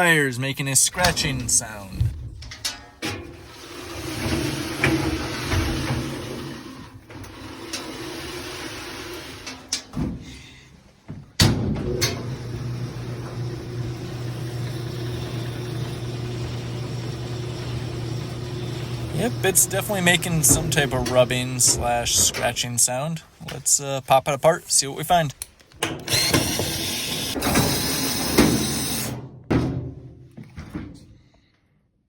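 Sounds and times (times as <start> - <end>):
clothes dryer humming: 0.0 - 29.2
dryer drum rubbing and scratching: 1.0 - 10.0, 14.1 - 23.6.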